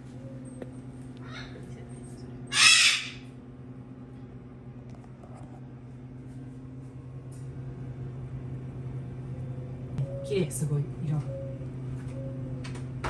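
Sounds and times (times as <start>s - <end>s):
steady low hum: 0.0s - 13.0s
parrot squawk: 2.5s - 3.3s.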